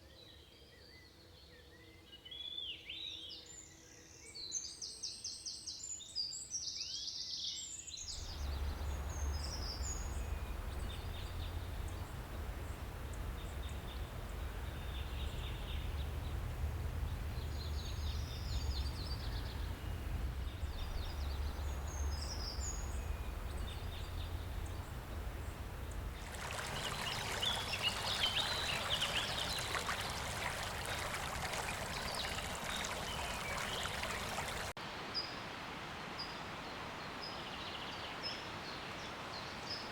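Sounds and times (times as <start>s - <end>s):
low rumble: 8.1s - 34.7s
flowing water rushing: 8.1s - 34.8s.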